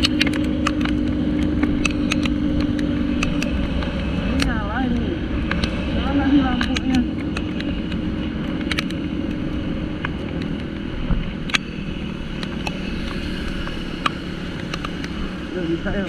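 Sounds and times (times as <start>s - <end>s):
scooter engine running: 0.0s - 16.0s
sharp ticks: 0.0s - 16.0s
wind on microphone: 0.0s - 16.0s.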